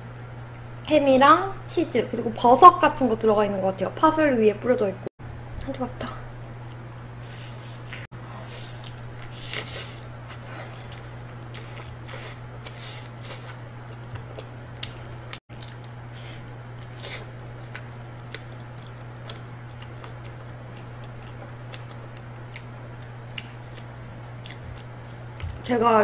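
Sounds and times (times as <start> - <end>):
steady low hum: 0.0 - 26.0
chewing crispy pizza: 8.6 - 25.7.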